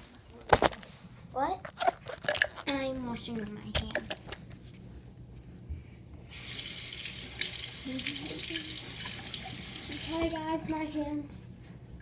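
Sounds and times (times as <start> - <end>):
water running into sink: 6.3 - 10.6.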